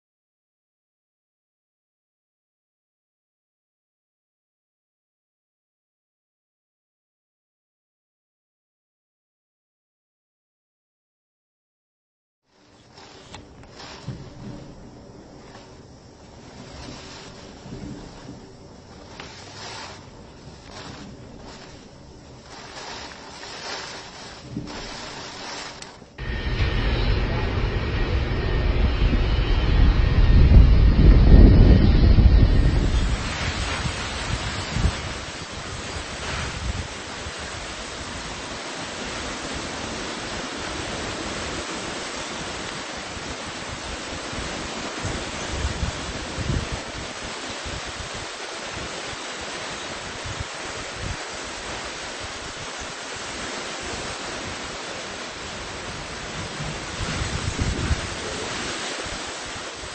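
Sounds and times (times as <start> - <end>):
steady rushing noise: 12.5 - 59.9
wind on microphone: 12.6 - 59.9
low rumbling bumps: 12.9 - 38.0.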